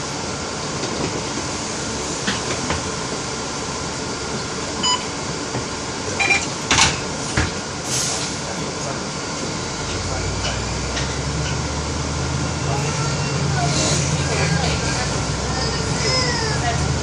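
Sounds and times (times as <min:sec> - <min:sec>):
short electronic beep: 0:04.8 - 0:05.1.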